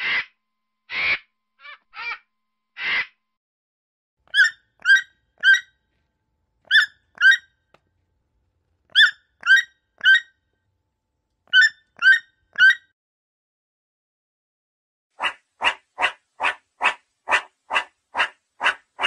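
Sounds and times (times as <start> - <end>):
animal squeaky calls: 0.0 - 2.2, 2.8 - 3.2, 4.3 - 5.8, 6.7 - 7.5, 8.9 - 10.4, 11.5 - 12.9.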